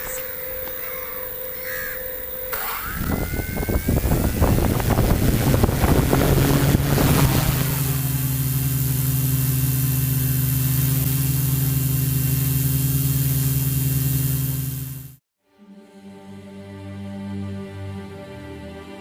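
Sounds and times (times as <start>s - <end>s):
drone motors whining: 0.0s - 15.2s
propeller wash buffeting microphone: 0.0s - 15.2s.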